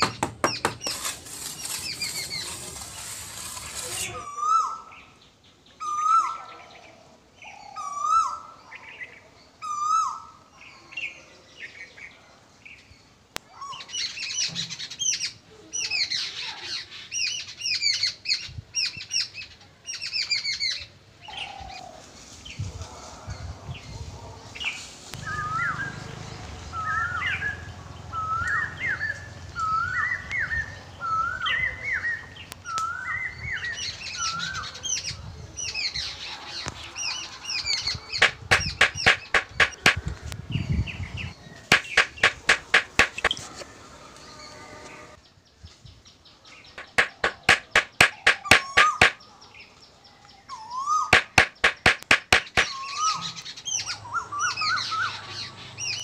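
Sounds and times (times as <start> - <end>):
birds chirping: 24.6 - 56.0.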